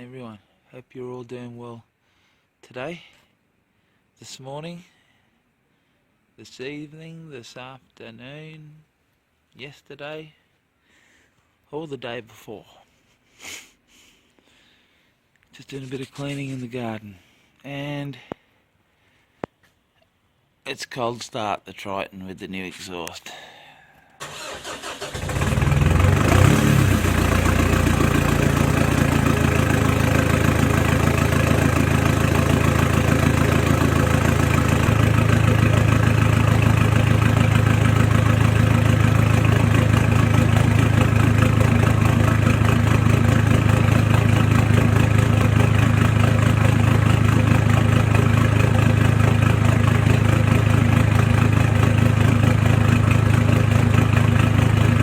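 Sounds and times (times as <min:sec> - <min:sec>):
engine starting and idling: 0:24.2 - 0:55.0.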